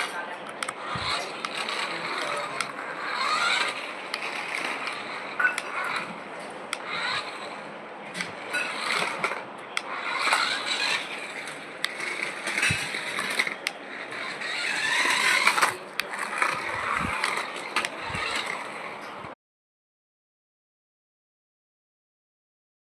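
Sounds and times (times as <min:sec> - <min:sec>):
toy car whirring: 0:00.0 - 0:19.4
plastic gears clicking: 0:00.6 - 0:07.5, 0:08.2 - 0:19.0.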